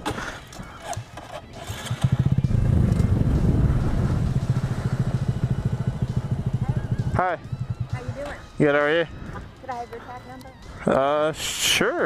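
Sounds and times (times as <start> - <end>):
motorcycle engine idling: 1.5 - 10.7.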